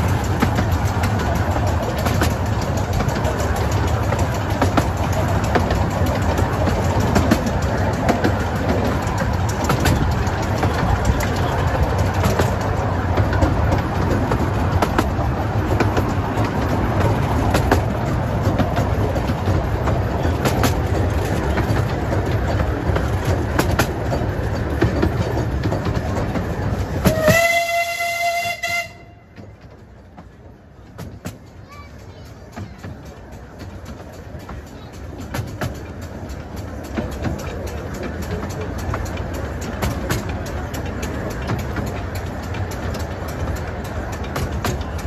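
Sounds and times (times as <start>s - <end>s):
clicks over rail joints: 0.0s - 45.0s
train wheels rumbling on rails: 0.0s - 45.0s
locomotive whistle blast: 27.0s - 29.3s.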